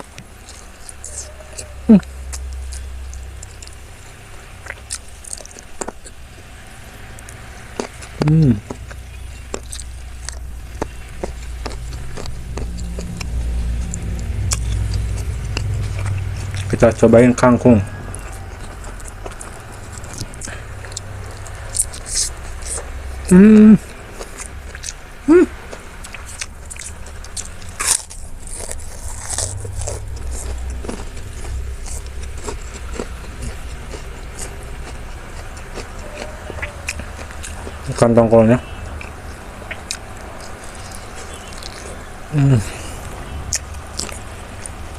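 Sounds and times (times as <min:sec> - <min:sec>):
low steady rumble: 0:00.0 - 0:44.9
wet mouth clicks and chewing: 0:00.0 - 0:44.9
sharp crunch: 0:25.7 - 0:38.1.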